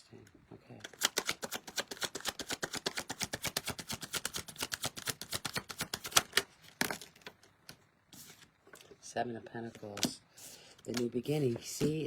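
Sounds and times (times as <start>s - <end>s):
cards being shuffled: 0.8s - 8.9s, 10.8s - 12.0s.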